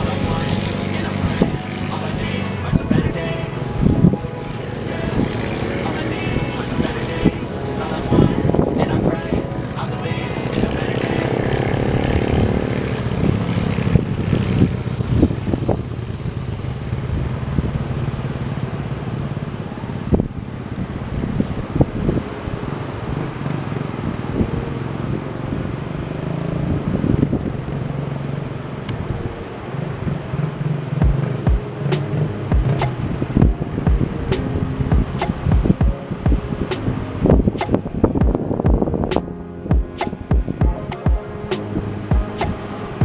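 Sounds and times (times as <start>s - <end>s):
engine humming: 0.0s - 19.2s.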